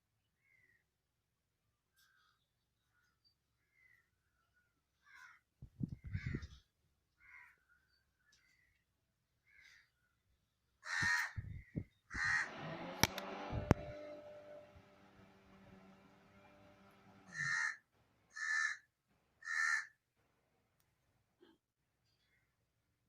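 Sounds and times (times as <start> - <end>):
harsh animal calls: 10.8 - 11.4, 12.1 - 14.6, 16.4 - 17.8
sharp clicks: 12.2 - 16.9.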